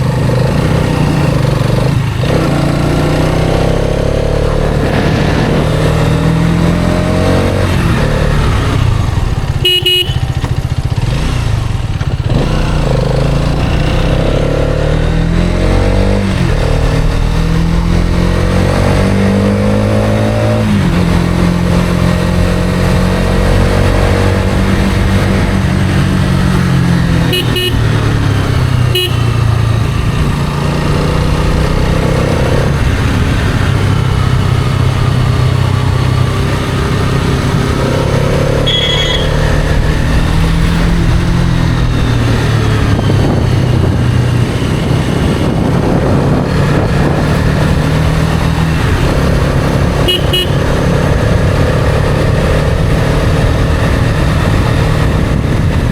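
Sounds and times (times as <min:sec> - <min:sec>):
motorcycle engine accelerating: 0:00.0 - 0:55.9
horn beeps: 0:09.6 - 0:10.4, 0:27.1 - 0:28.1, 0:28.8 - 0:29.6, 0:38.5 - 0:39.8, 0:50.0 - 0:50.8.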